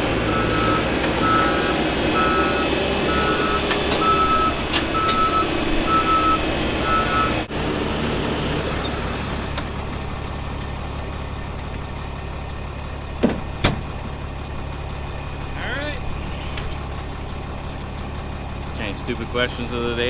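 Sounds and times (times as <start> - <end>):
vehicle backup alarm beeping: 0.0 - 7.5
engine running: 0.0 - 20.0.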